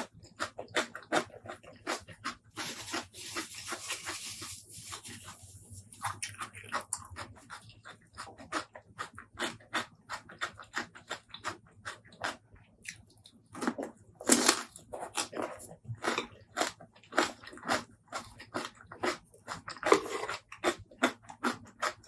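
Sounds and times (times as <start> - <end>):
wet chewing and mouth smacks: 5.9 - 14.0.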